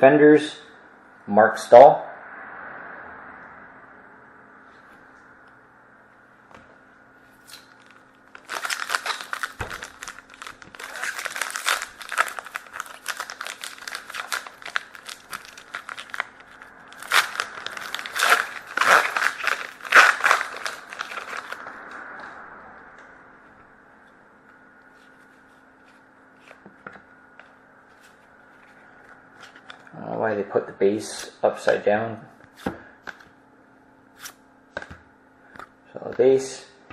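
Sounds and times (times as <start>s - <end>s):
wrapper crinkling: 7.5s - 21.6s.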